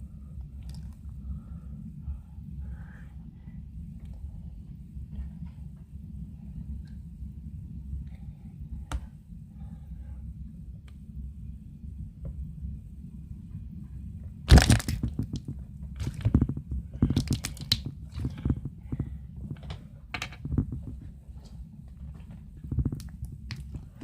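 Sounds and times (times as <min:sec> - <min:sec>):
slime being squeezed by hand: 0:14.5 - 0:16.4, 0:17.0 - 0:18.4
wet crackling pops: 0:14.5 - 0:18.3.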